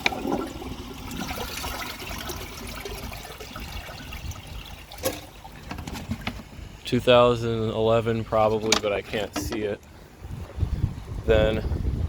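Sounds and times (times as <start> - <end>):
water trickling and pouring: 0.0 - 6.5.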